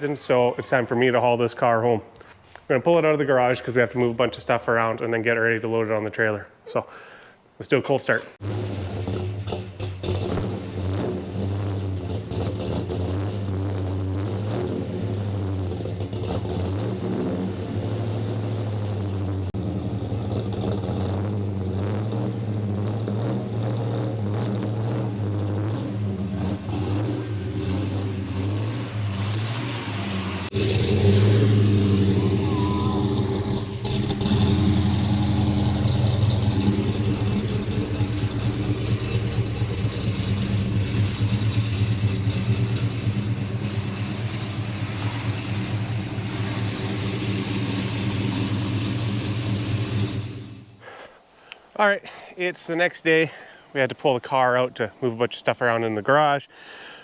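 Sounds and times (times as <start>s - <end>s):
car engine idling: 8.4s - 50.9s.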